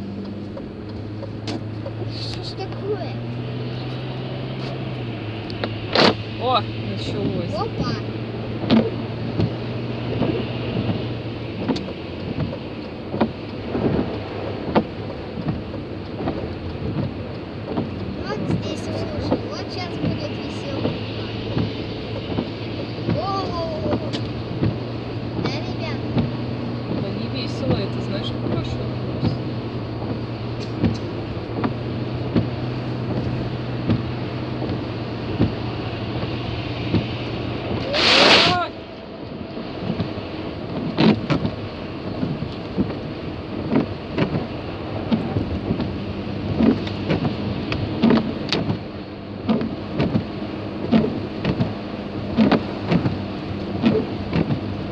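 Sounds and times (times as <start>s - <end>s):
heavy rain on car: 0.0s - 54.9s
windscreen wipers thumping: 0.0s - 54.9s.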